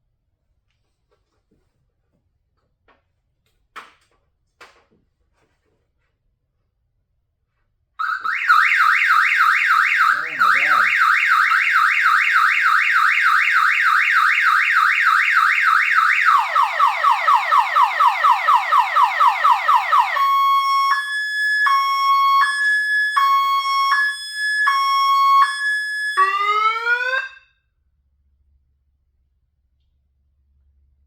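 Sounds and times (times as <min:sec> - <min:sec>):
car alarm siren: 0:08.0 - 0:27.5.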